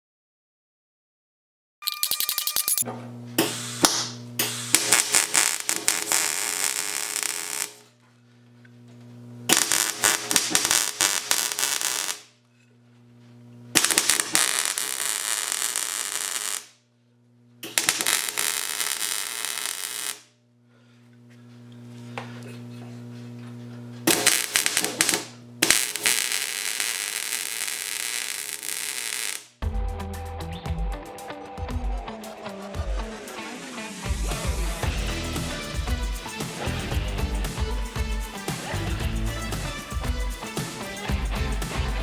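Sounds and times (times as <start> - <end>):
welding arc crackling: 3.5 - 7.8, 9.5 - 12.3, 13.8 - 16.7, 17.6 - 20.3, 24.1 - 29.6.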